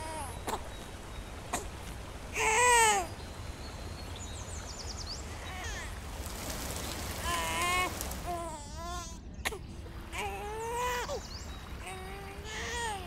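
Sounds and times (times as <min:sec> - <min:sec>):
rain hissing: 0:06.0 - 0:08.3.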